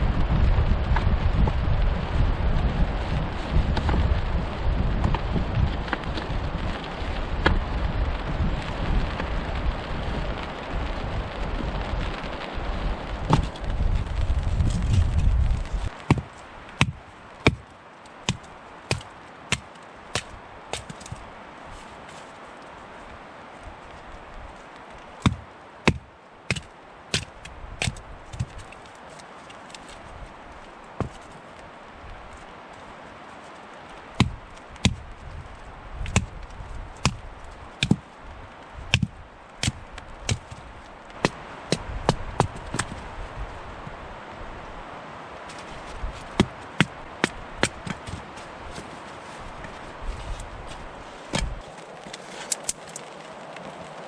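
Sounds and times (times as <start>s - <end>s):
steady low hiss: 0.0s - 54.0s
wind rumble on microphone: 0.0s - 54.0s
tool chopping wood: 13.3s - 13.5s, 16.0s - 17.6s, 18.2s - 21.2s, 25.2s - 28.7s, 34.2s - 35.0s, 36.0s - 36.4s, 37.0s - 37.2s, 37.8s - 38.0s, 38.9s - 40.6s, 41.2s - 43.0s, 46.4s - 48.2s, 51.3s - 51.6s.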